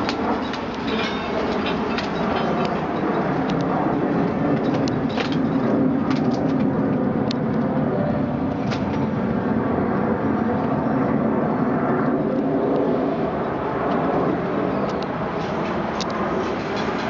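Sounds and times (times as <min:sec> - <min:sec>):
aircraft engine noise: 0:00.0 - 0:17.0.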